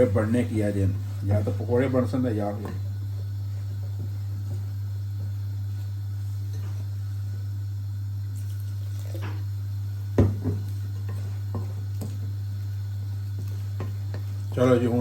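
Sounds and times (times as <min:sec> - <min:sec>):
steady low hum: 0:00.0 - 0:15.0
wet batter stirring: 0:10.6 - 0:15.0.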